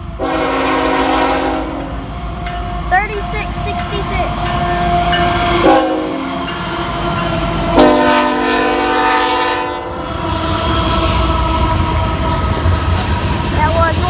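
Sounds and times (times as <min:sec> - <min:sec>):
freight train rumble: 0:00.0 - 0:14.0
locomotive air horn blasts: 0:00.2 - 0:01.8, 0:04.6 - 0:06.5, 0:07.7 - 0:10.0.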